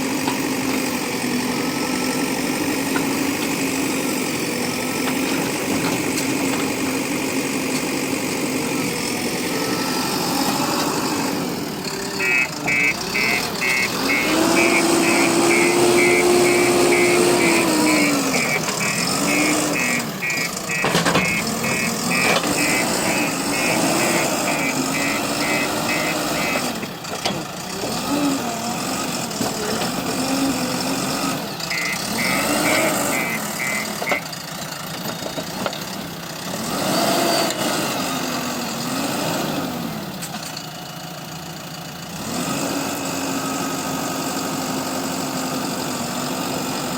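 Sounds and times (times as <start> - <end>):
diesel engine revving: 0.0 - 40.4, 41.0 - 46.9
rapid electronic beeping: 12.2 - 26.6, 31.7 - 34.2
sharp clunks: 20.8 - 22.6.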